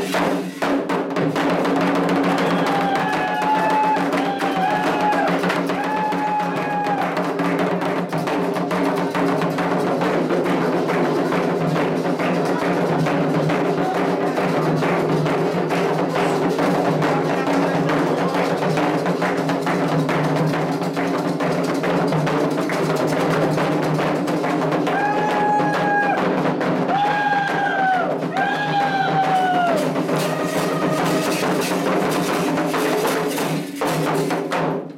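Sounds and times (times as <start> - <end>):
hand drums: 0.0 - 34.9
high held calls: 2.2 - 7.2, 26.8 - 34.0.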